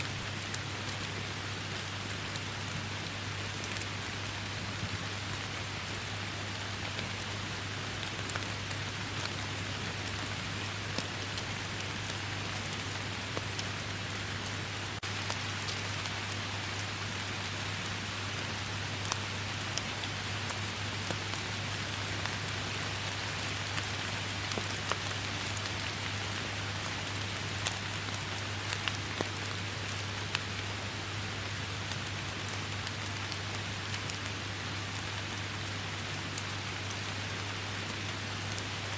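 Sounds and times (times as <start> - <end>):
steady rain hiss: 0.0 - 38.9
raindrops ticking: 8.0 - 17.3, 18.3 - 26.0, 26.6 - 30.8.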